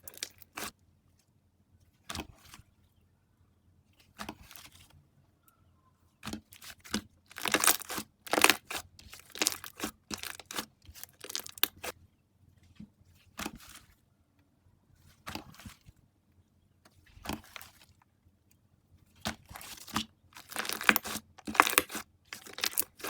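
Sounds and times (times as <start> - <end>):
slime crackling and popping: 7.3 - 11.9, 19.6 - 23.0.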